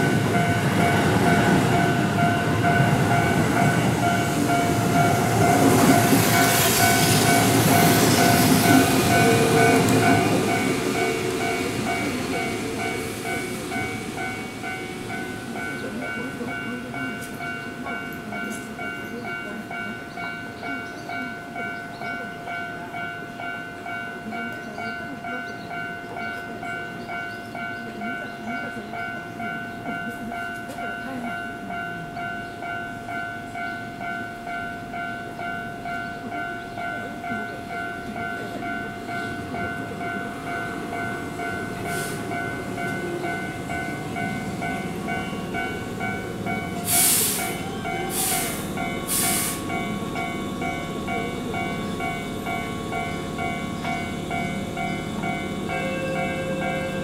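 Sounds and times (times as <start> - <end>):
electric train braking to a stop: 40.4 - 57.0
air hiss: 46.8 - 49.7.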